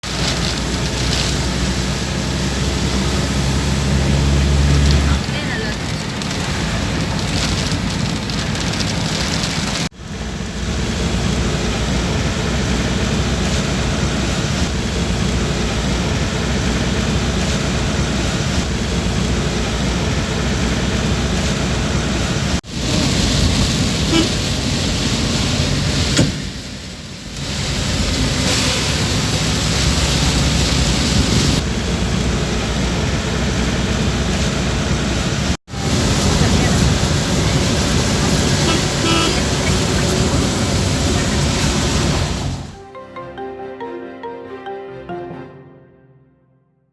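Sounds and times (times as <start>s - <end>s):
road traffic noise: 0.0s - 42.8s
car horn toots: 24.1s - 24.4s, 38.4s - 40.5s.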